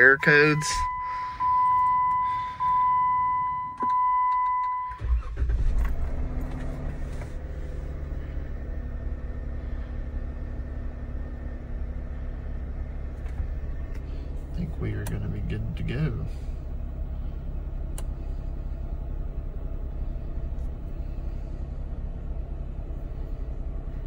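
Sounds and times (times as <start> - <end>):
dashboard warning chime: 0.0 - 5.2
car engine cranking and idling: 0.0 - 24.0.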